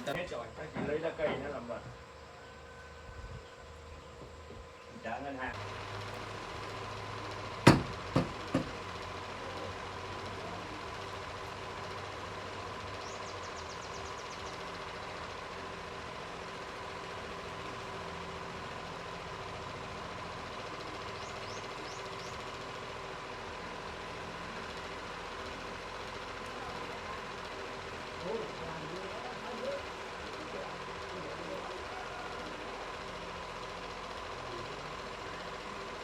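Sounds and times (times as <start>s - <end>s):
steady mechanical hum: 0.0s - 36.0s
sharp knocks: 7.7s - 8.8s.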